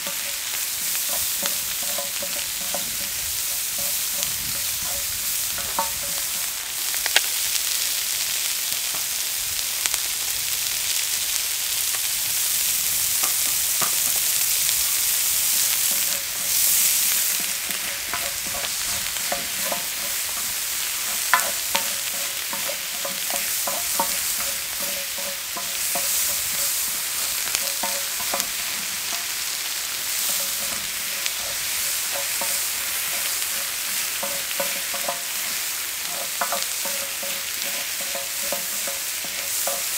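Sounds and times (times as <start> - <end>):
spatulas scraping and tapping metal: 0.0 - 6.5, 15.8 - 29.4, 30.2 - 39.9
food sizzling in oil: 0.0 - 39.9.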